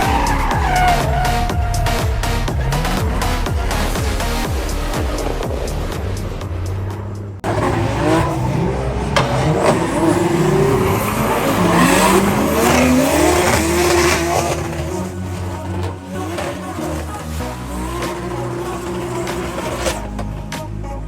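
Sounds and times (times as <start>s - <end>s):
music: 0.0s - 7.4s, 12.0s - 21.0s
tyres squealing: 0.0s - 20.6s
car engine revving: 0.0s - 20.9s.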